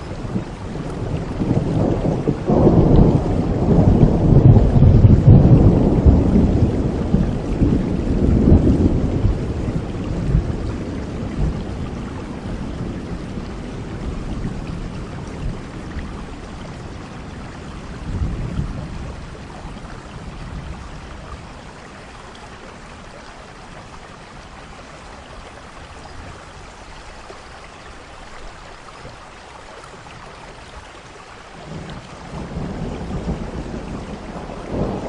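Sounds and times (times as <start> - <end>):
rolling thunder: 0.0 - 21.6, 31.7 - 35.0
steady rain: 0.0 - 35.0.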